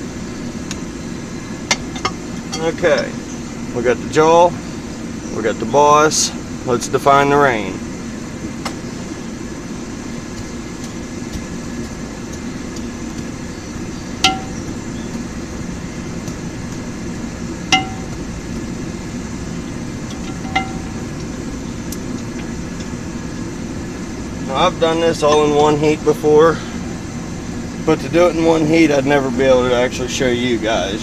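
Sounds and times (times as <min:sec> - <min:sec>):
hammer striking steel anvil: 0:14.2 - 0:14.7, 0:17.7 - 0:18.2, 0:20.2 - 0:21.0.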